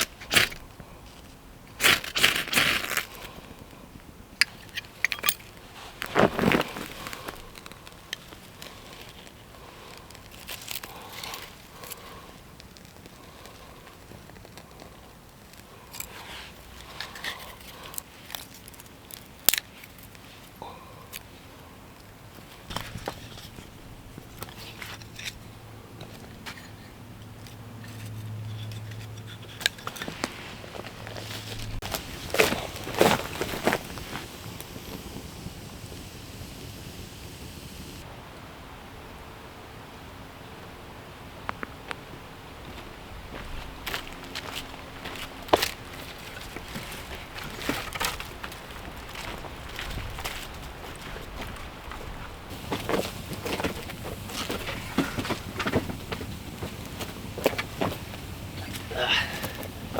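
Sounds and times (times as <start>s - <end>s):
kindling crackling and snapping: 0.0s - 20.5s, 28.7s - 38.1s, 43.9s - 59.9s.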